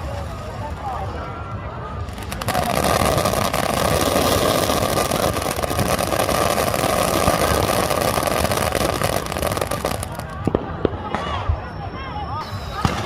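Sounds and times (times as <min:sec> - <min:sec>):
firework buzzing hiss and crackling: 0:02.1 - 0:10.4.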